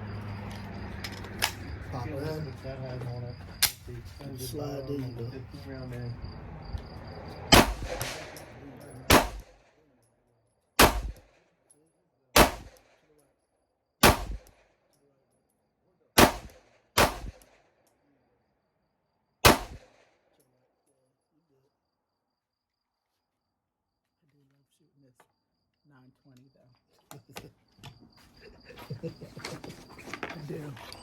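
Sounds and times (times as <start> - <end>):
pistol shots: 7.5 - 9.7, 10.8 - 11.3, 12.4 - 13.0, 14.0 - 14.6, 16.2 - 17.6, 19.4 - 20.1.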